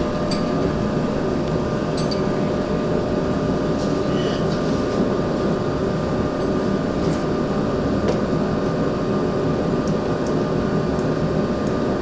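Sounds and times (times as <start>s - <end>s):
rumbling machine noise: 0.0s - 8.5s.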